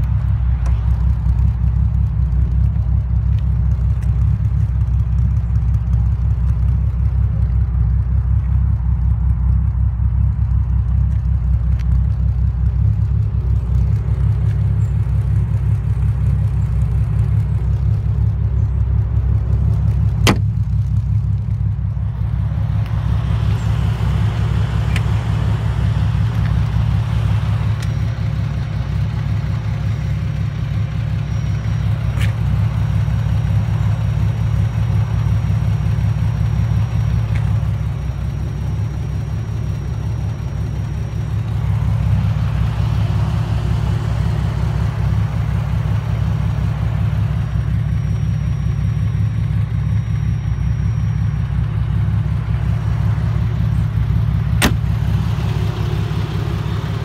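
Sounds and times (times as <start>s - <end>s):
car engine idling: 0.0s - 57.0s
sharp knock: 54.6s - 54.9s.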